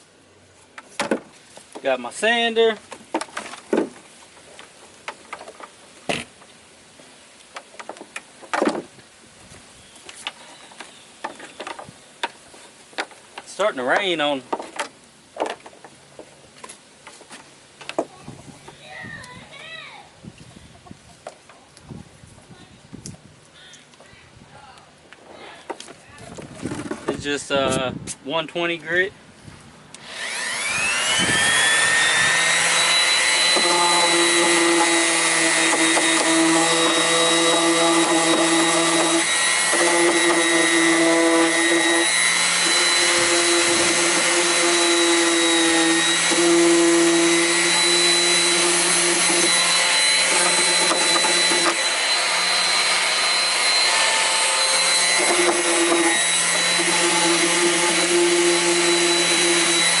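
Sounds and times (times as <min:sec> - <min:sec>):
electric sander whining: 0:30.0 - 1:00.0.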